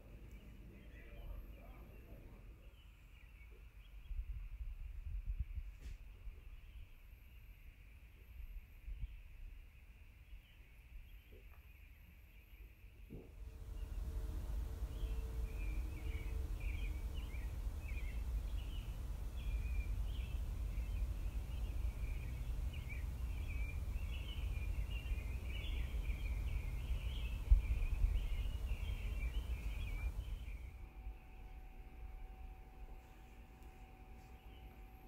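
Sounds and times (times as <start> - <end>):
small birds chirping: 0.0 - 35.0
low background rumble: 13.2 - 35.0.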